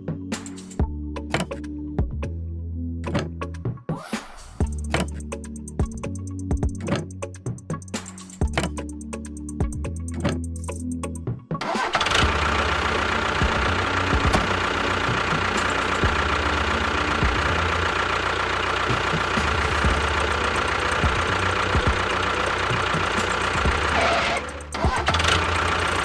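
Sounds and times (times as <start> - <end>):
music: 0.0 - 26.0
mechanical running noise: 11.7 - 26.0.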